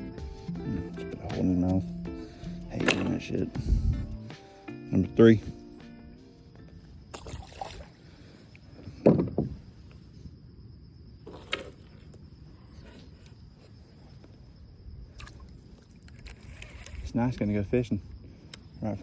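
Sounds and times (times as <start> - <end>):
hollow knocks on a kayak: 9.0 - 9.6.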